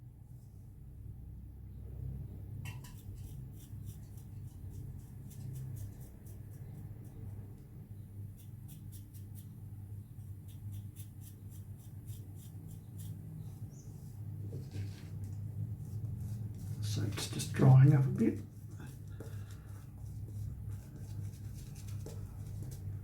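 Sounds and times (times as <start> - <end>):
razor scraping stubble: 2.8 - 7.3, 8.3 - 13.6.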